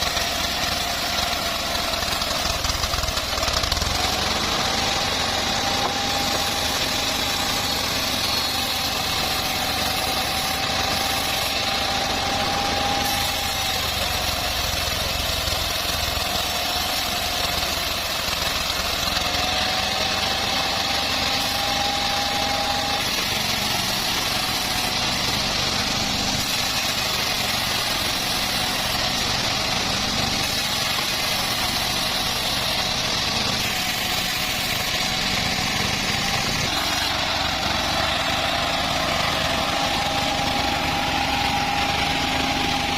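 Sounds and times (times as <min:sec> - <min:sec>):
faint mechanical whine: 0:00.0 - 0:19.3
bandsaw mill running: 0:00.0 - 0:42.9.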